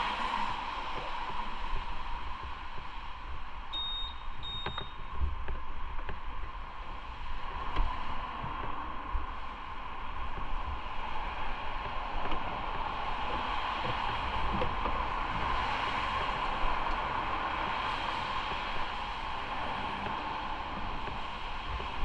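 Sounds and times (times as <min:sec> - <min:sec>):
wind rushing over microphone: 0:05.1 - 0:22.0.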